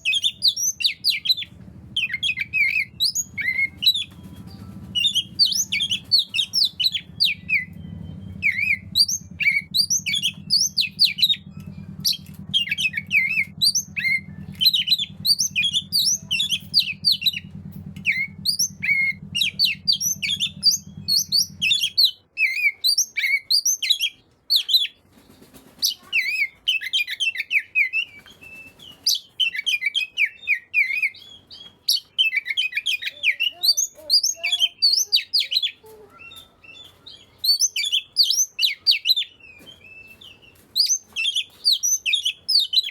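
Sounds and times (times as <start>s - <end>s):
faint low hum: 0.0s - 27.2s
songbird singing chirps and whistles: 0.0s - 42.9s.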